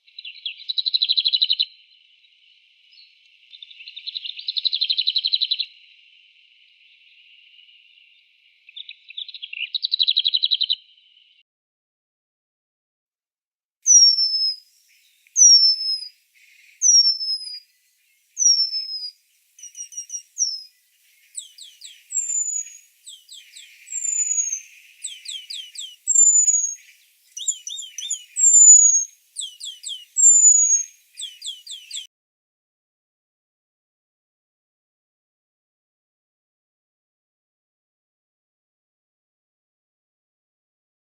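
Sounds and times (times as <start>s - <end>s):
songbird whistling notes: 13.9s - 32.1s.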